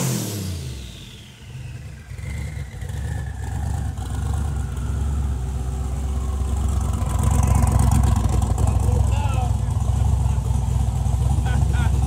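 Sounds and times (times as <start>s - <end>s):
engine idling: 0.5s - 12.0s
turbo whine spinning down: 0.6s - 9.8s.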